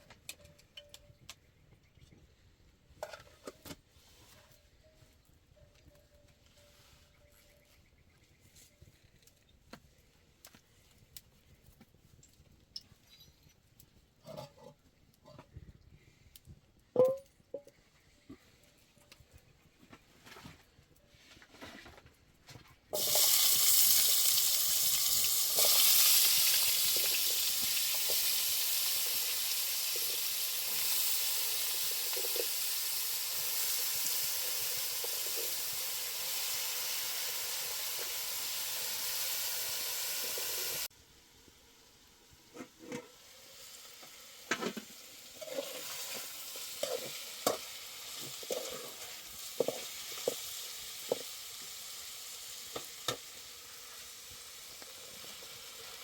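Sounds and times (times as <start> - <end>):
food sizzling in a pan: 23.0 - 40.9, 43.1 - 56.0.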